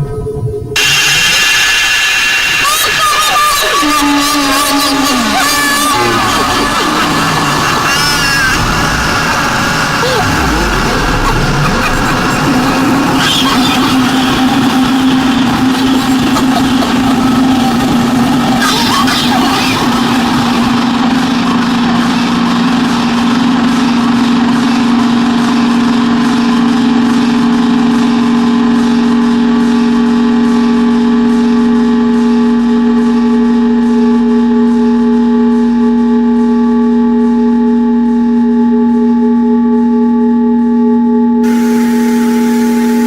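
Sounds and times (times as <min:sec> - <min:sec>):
synthesizer drone: 0:00.0 - 0:43.0
hiss: 0:00.8 - 0:04.8.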